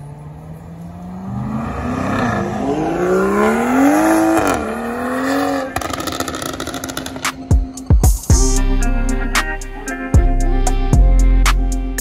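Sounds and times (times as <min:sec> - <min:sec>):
car engine revving: 0:00.0 - 0:07.5.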